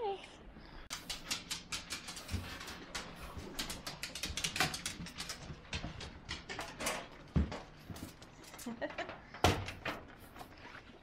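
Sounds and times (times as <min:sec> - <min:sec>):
dogs making excited noises: 0:00.9 - 0:06.6.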